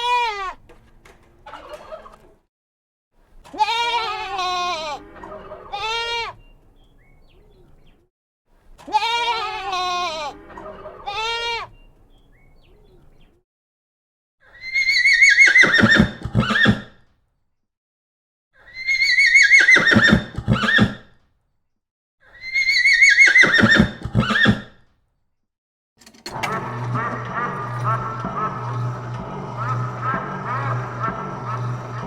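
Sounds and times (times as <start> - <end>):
farm animals calling: 3.5 - 6.4, 8.9 - 12.0, 14.5 - 16.9, 18.7 - 21.0, 22.3 - 24.7
horse whinny: 14.4 - 17.0, 18.6 - 21.1, 22.3 - 24.8.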